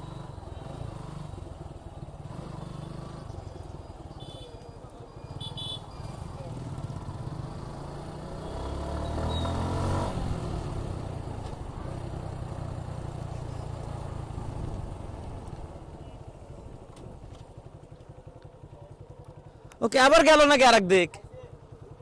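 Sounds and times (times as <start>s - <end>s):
motorcycle engine revving: 0.0s - 4.4s, 5.3s - 16.8s.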